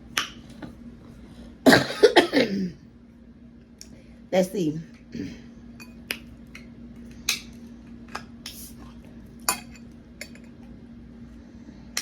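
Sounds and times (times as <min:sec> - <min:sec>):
steady low hum: 0:00.0 - 0:12.0
dishes and utensils clinking: 0:09.4 - 0:10.6.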